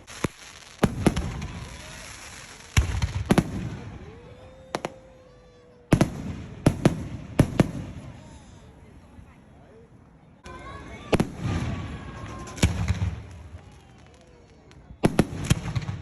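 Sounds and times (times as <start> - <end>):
fireworks crackle: 0.0 - 5.1, 10.4 - 16.0
fireworks bangs: 0.0 - 8.6, 10.6 - 16.0.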